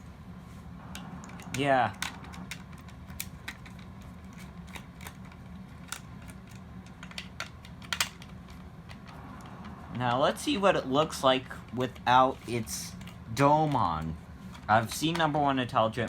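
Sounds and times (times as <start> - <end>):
faint low hum: 0.0 - 16.0
plastic toy parts clicking: 0.9 - 9.2.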